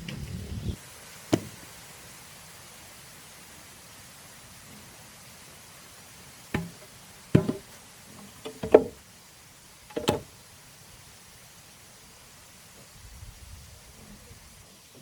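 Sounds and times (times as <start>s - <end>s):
hard ringing knocks: 6.6s - 6.8s, 7.4s - 7.7s.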